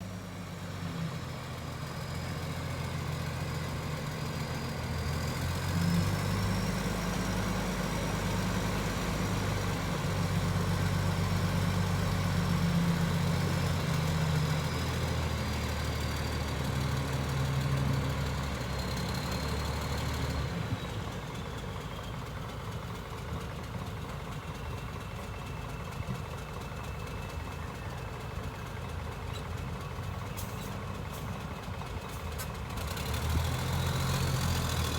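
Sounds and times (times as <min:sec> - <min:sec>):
heavy diesel engine running: 0:00.0 - 0:34.9.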